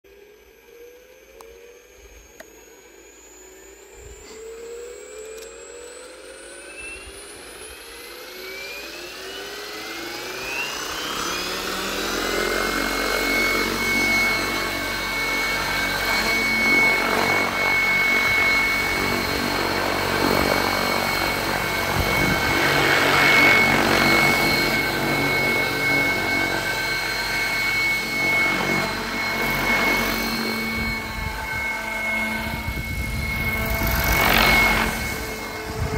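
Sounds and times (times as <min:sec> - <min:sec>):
rc helicopter motor whine: 0:00.1 - 0:35.9
rotor noise: 0:09.4 - 0:35.9.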